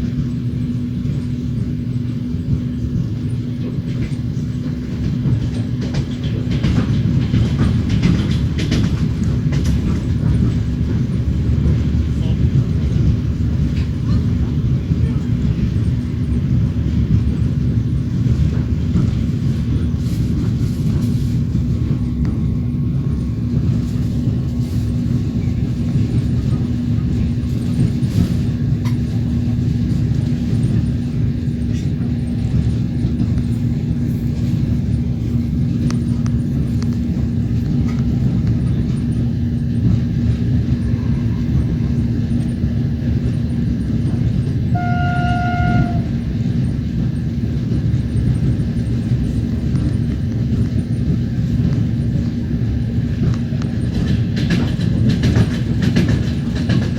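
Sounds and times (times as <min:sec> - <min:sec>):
train wheels rumbling on rails: 0:00.0 - 0:56.9
steady hum: 0:17.2 - 0:45.0
train horn blast: 0:44.7 - 0:46.3.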